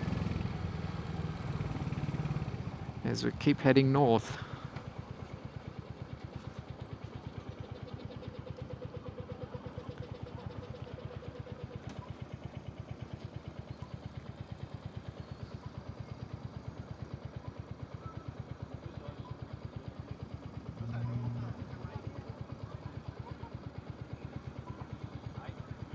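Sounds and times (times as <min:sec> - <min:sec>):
motorcycle engine idling: 0:00.0 - 0:25.9.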